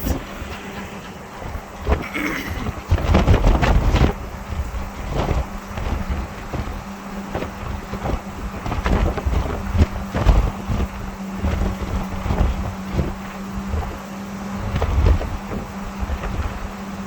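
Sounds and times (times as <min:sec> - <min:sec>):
farm machinery engine drone: 0:00.0 - 0:17.0
wind buffeting microphone: 0:00.0 - 0:17.0.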